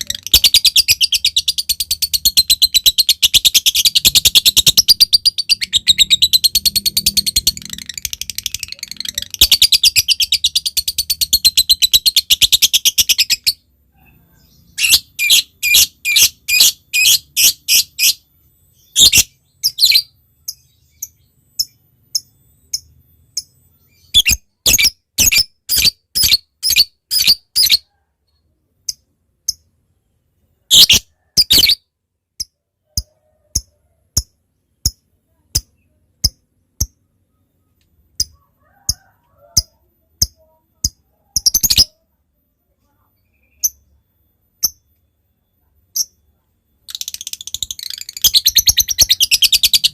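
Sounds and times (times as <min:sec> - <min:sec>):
lovebird chattering trill: 0:00.0 - 0:13.6, 0:46.8 - 0:49.9
lovebird sharp chirps: 0:00.0 - 0:13.6, 0:18.8 - 0:27.9, 0:30.7 - 0:42.1, 0:43.2 - 0:49.9.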